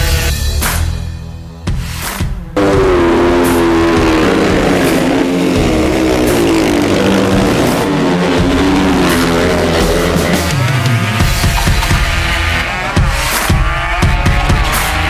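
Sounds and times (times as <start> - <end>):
motorcycle engine at high revs: 2.6 - 15.0.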